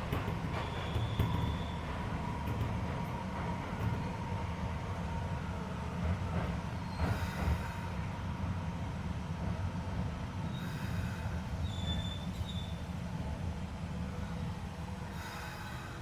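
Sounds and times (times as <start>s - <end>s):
train wheel clicks: 0.0s - 5.0s
train rolling rumble: 0.0s - 16.0s
high-pitched wheel squeal: 11.6s - 12.8s.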